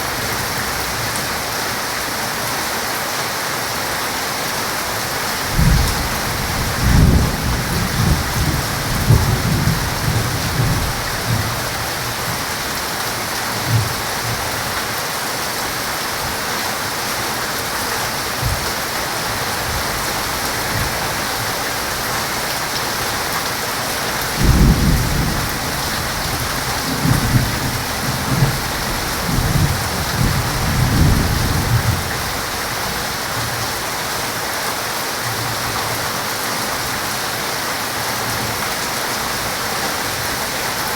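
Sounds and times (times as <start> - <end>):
heavy rain falling: 0.0 - 40.9
rolling thunder: 5.5 - 11.8, 24.3 - 32.4.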